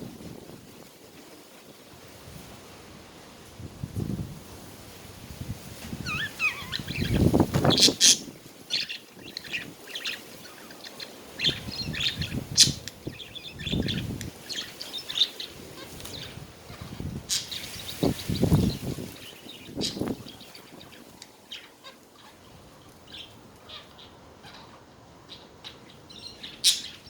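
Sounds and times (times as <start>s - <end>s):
budgerigars chattering: 6.1s - 27.0s.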